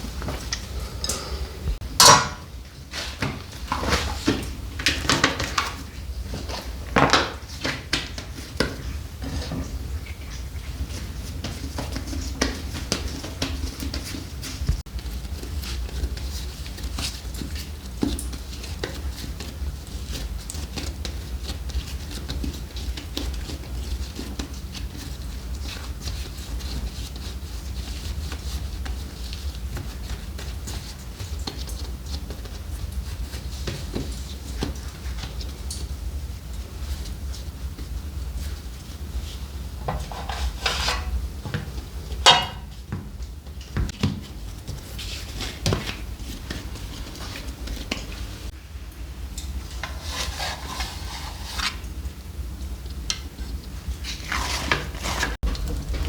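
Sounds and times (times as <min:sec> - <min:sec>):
low steady hum: 0:00.0 - 0:04.4, 0:55.4 - 0:56.0
kitchenware clinking: 0:00.7 - 0:02.6, 0:39.9 - 0:41.2, 0:42.2 - 0:42.7
steady low rumble: 0:55.4 - 0:56.0.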